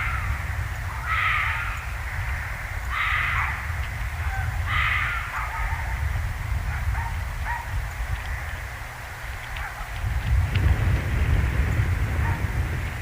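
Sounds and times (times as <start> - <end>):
crow-like cawing: 0.0 - 6.0, 8.2 - 8.8
steady low rumble: 0.0 - 13.0.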